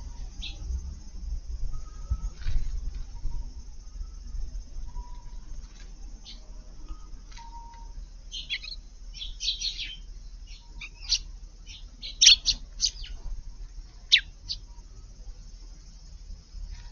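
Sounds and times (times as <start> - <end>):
sparrows chirping: 0.0 - 0.7, 1.7 - 16.9.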